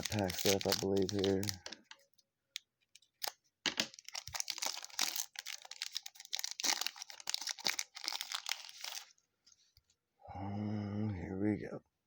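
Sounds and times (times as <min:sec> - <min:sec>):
plastic wrapper tearing and crinkling: 0:00.0 - 0:02.0, 0:03.0 - 0:09.1.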